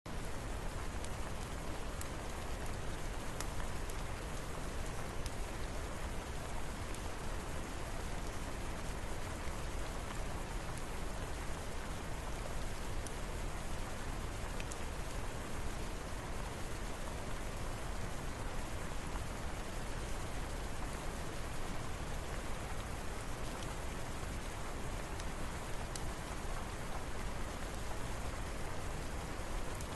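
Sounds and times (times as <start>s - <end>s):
steady rain falling: 0.1s - 29.9s
faint sharp ticks: 14.6s - 14.8s, 25.1s - 27.0s.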